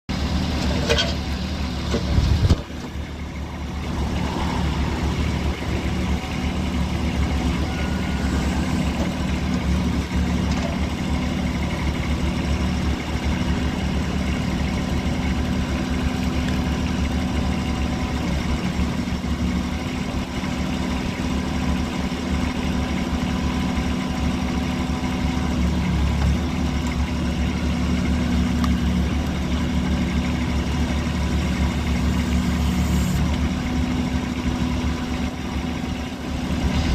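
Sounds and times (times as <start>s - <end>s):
diesel engine idling: 0.1s - 36.9s.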